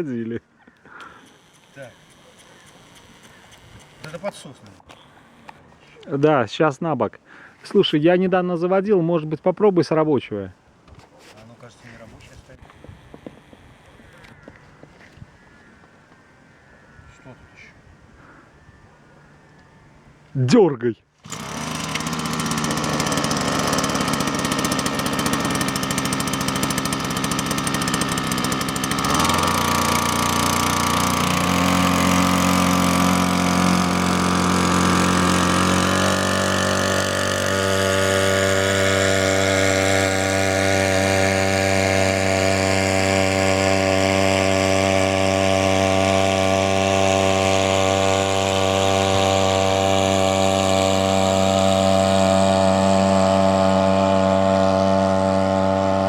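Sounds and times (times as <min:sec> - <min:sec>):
small outboard motor running: 0:00.9 - 0:05.5, 0:12.6 - 0:14.6, 0:21.2 - 0:56.0.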